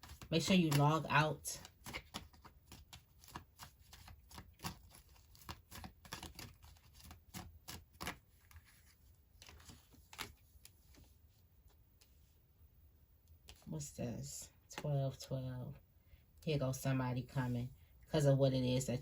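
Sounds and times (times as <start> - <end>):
cards shuffled by hand: 0.0 - 11.1, 13.4 - 13.7.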